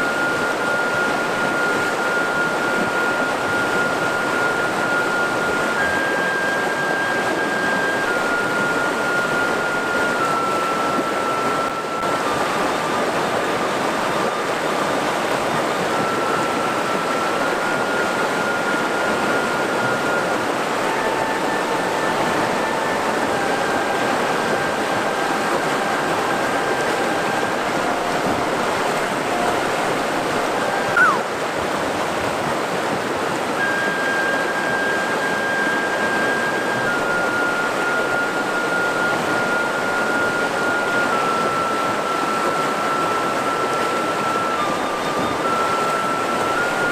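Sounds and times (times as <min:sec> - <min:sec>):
faint long held tones: 0:00.0 - 0:46.9
river rushing over rocks: 0:00.0 - 0:46.9
brief falling pitch sound: 0:30.9 - 0:31.3.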